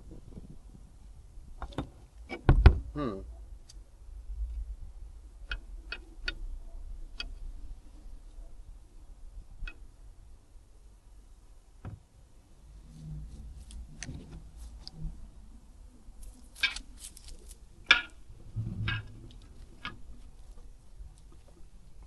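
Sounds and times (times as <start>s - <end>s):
faint low rumble: 0.0s - 22.0s
hand tools tapping on metal: 17.9s - 18.2s.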